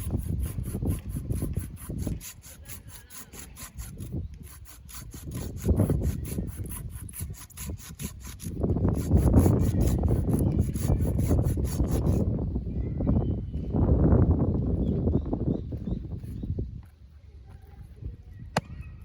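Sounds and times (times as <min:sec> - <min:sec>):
saw cutting through wood: 0:00.0 - 0:12.2.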